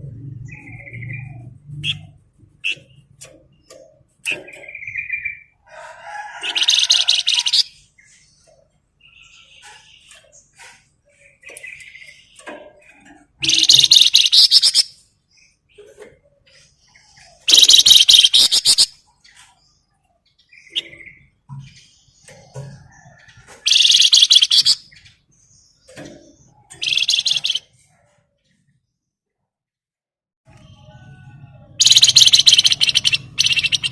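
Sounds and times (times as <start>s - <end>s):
songbird rattling trills: 6.2s - 8.1s, 9.5s - 15.0s, 17.4s - 19.0s, 23.2s - 25.0s, 26.6s - 27.6s, 31.8s - 33.9s
faint bird chirps: 6.5s - 28.8s, 30.5s - 33.9s.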